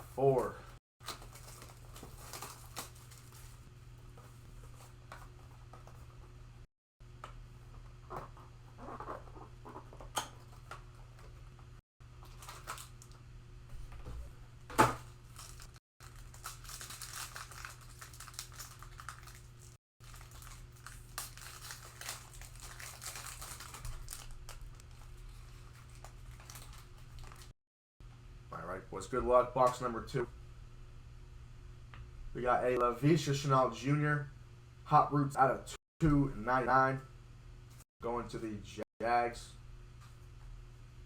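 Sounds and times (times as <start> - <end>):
plastic shrink wrap crinkling: 1.0 - 3.7, 12.2 - 13.2, 15.0 - 27.5.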